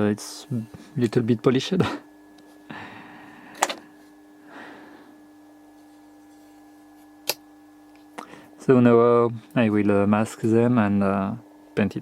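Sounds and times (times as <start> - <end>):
faint electrical hum: 0.0 - 12.0
sharp click: 7.2 - 7.4.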